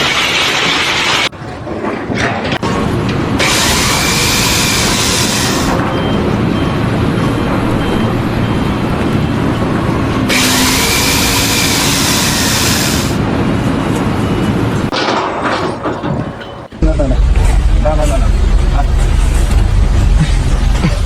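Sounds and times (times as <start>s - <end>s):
loud machine noise: 0.0s - 16.0s, 16.8s - 21.0s
hissing: 18.1s - 21.0s.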